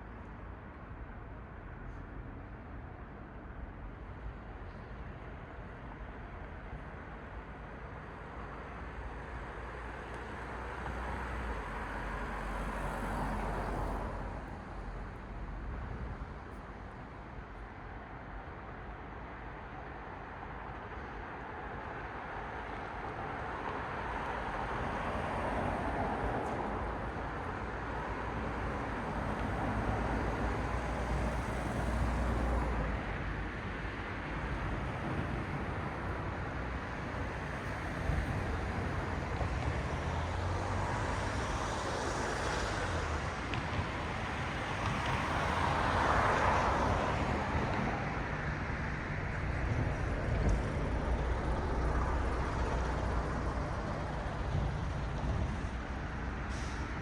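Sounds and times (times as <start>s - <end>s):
low rumble of traffic: 0.0s - 57.0s
cars passing: 10.6s - 15.5s, 22.7s - 57.0s.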